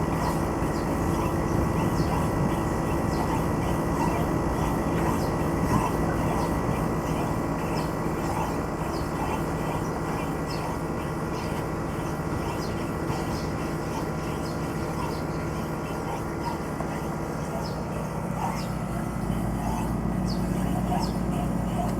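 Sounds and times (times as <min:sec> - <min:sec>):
air conditioner unit humming: 0:00.0 - 0:21.9.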